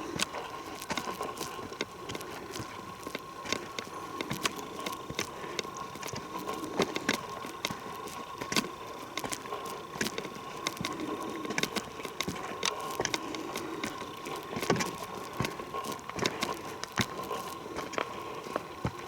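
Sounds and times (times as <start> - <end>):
footsteps crunching on forest trail: 0.0 - 19.0.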